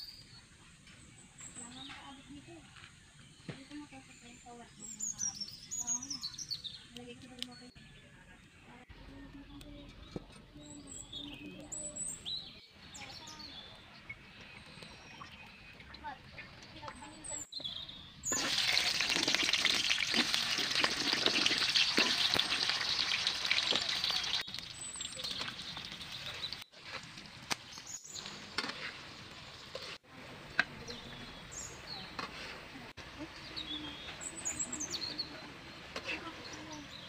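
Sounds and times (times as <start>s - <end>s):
birds chirping: 0.0s - 26.8s, 27.6s - 37.0s
food frying in hot oil: 18.2s - 30.1s.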